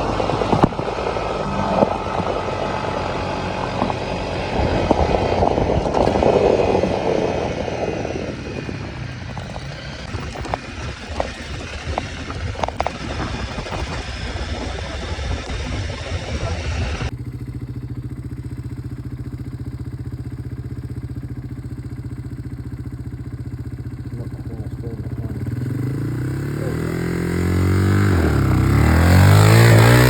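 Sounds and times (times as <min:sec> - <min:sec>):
clicks and knocks from trail: 0:00.0 - 0:15.6
wind rushing: 0:00.0 - 0:17.1
engine running: 0:00.0 - 0:30.0.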